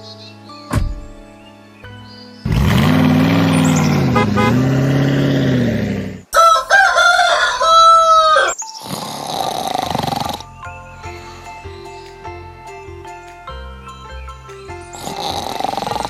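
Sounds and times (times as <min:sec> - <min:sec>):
rooster crowing: 0:06.3 - 0:08.6.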